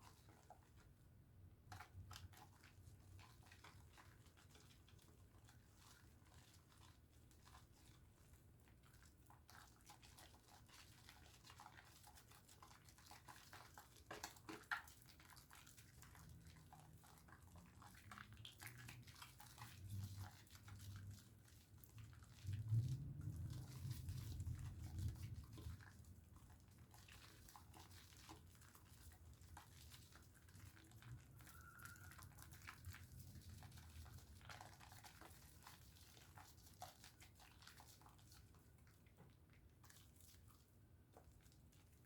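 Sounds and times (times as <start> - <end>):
soap bar lathering wet crackle: 0.0 - 42.0.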